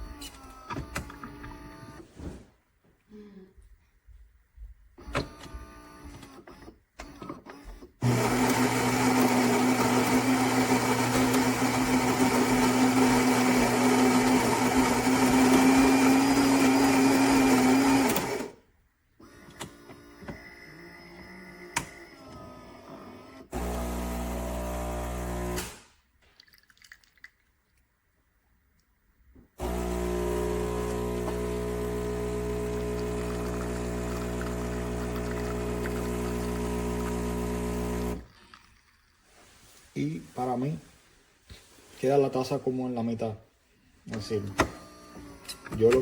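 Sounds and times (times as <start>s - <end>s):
espresso brewing noises: 8.0s - 18.5s, 23.5s - 25.7s, 29.6s - 39.4s, 44.1s - 46.0s
coffee grinder whirring: 8.0s - 18.6s, 23.4s - 25.8s, 29.6s - 39.2s
pump buzzing: 23.2s - 25.8s, 29.6s - 38.7s.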